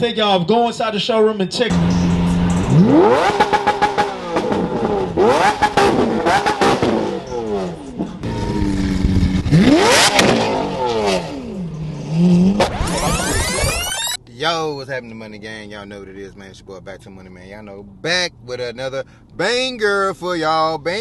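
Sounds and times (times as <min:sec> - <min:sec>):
exhaust crackling pops: 0:01.7 - 0:11.2
car engine revving: 0:01.7 - 0:14.4.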